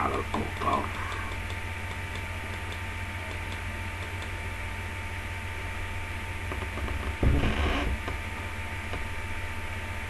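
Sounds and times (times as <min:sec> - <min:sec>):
faint ticking: 0:00.0 - 0:05.0
low electrical hum: 0:00.0 - 0:10.0.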